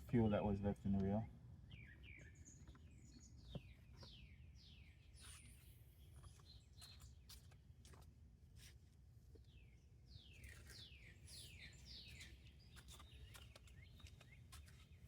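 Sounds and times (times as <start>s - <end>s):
faint bird chirps: 1.7s - 7.4s.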